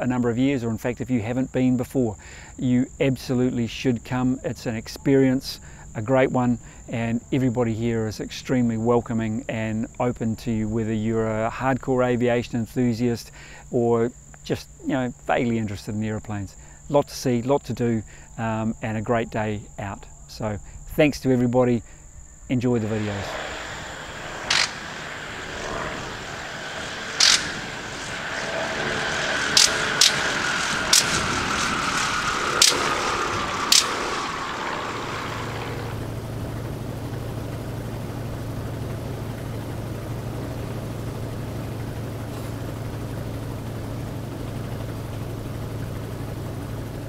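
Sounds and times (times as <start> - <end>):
biplane engine: 0.0 - 17.0, 17.7 - 47.0
engine pops: 26.2 - 36.2.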